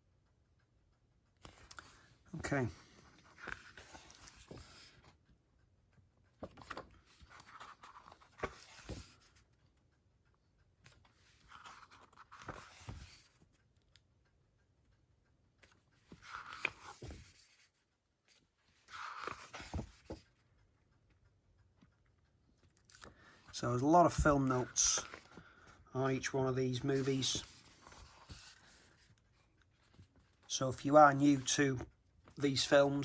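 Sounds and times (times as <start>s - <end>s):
paper pages rustling: 1.4s - 5.2s, 6.4s - 9.4s, 10.9s - 13.5s, 15.6s - 17.7s, 18.8s - 20.3s, 22.9s - 33.0s.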